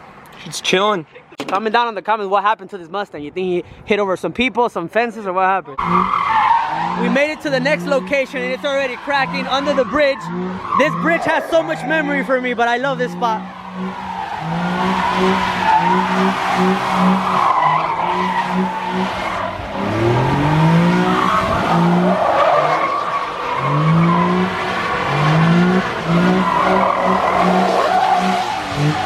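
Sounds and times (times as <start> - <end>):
car engine revving: 5.8 - 29.0
tyres screeching: 5.8 - 29.0.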